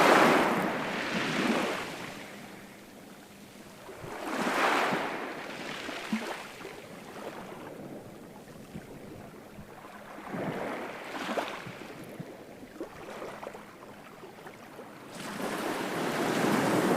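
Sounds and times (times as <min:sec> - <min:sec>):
ocean waves washing in: 0:00.0 - 0:08.2.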